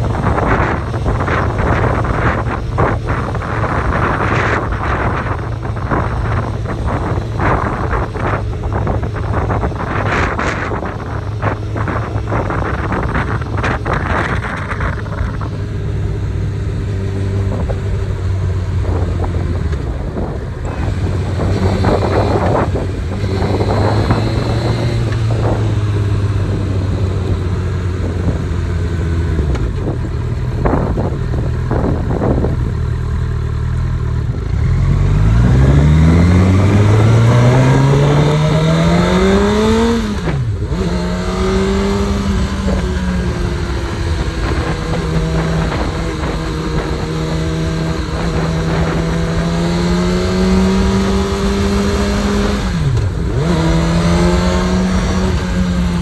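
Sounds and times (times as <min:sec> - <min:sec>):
wind rushing over microphone: 0:00.0 - 0:33.2, 0:34.0 - 0:56.0
motorcycle engine revving: 0:00.0 - 0:56.0.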